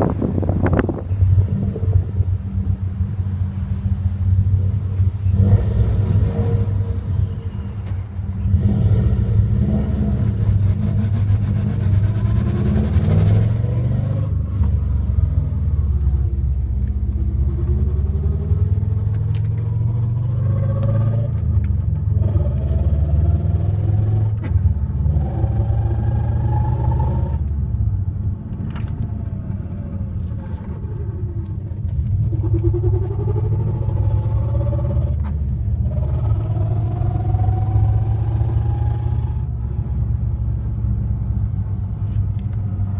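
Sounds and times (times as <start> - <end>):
drivetrain low rumble: 0.0 - 42.9
gearbox whine rising in pitch: 29.0 - 39.5.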